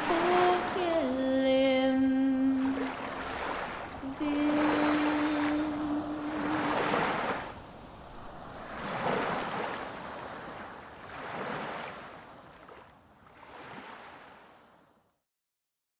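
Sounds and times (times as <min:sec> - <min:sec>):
ocean waves washing in: 0:00.0 - 0:15.1.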